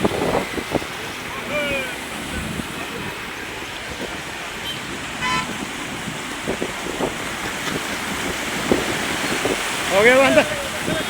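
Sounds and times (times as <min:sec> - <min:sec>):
vehicle horn toot: 0:04.6 - 0:05.7.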